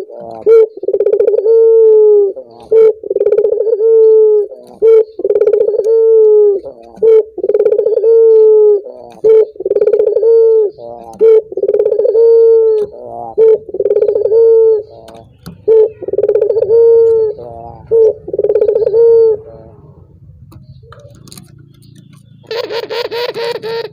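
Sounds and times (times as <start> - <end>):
dove cooing: 0.0 - 23.9.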